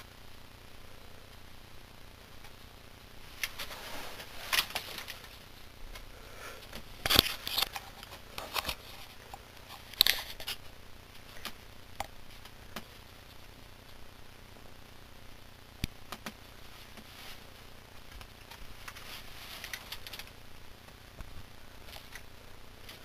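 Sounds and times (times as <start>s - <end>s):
rustling of objects being handled: 3.2s - 13.0s, 16.1s - 23.0s.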